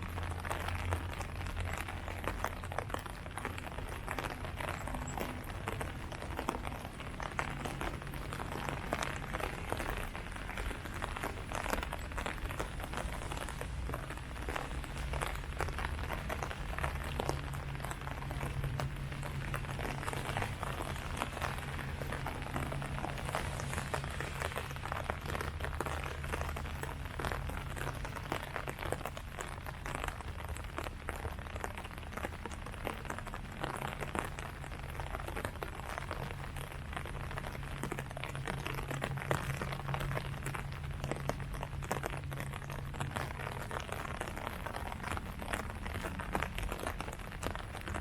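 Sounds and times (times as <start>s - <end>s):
low hum: 0.0s - 30.3s
rain falling on leaves: 0.0s - 48.0s.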